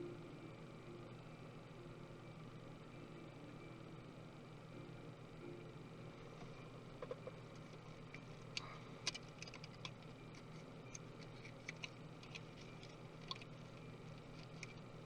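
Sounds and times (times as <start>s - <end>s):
steady low hum: 0.0s - 15.0s
small tools clicking: 8.1s - 14.9s.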